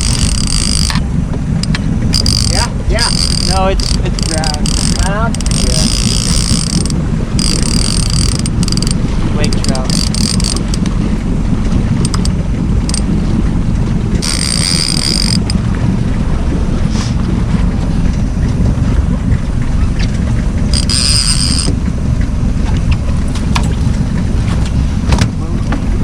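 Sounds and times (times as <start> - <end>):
boat motor running: 0.0 - 26.0
wind rumble on microphone: 0.0 - 26.0
short high-pitched whirring: 14.2 - 15.6, 20.7 - 21.8.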